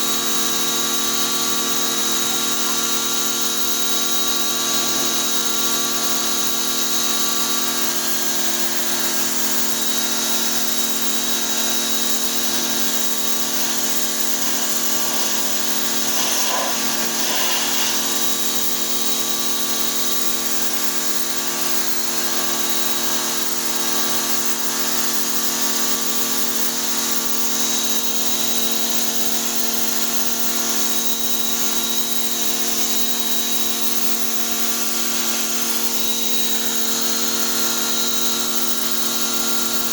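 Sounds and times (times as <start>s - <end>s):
pressure washer motor hum: 0.1s - 20.8s
water spray hissing: 10.4s - 19.5s.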